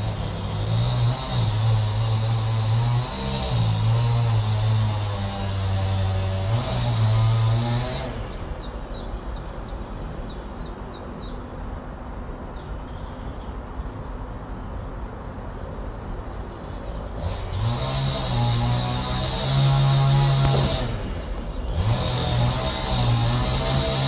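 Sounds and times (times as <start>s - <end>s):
bird chirping: 8.2s - 17.8s.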